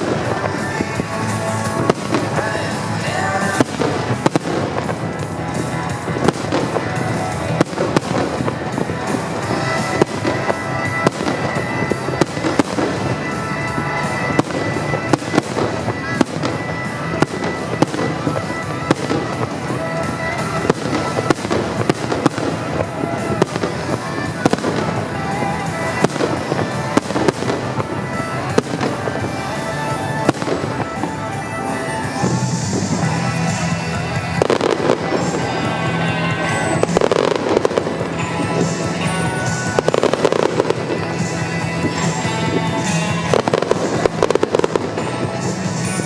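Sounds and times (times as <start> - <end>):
fireworks bursting with sharp bangs: 0.0 - 46.0
music: 0.0 - 46.0.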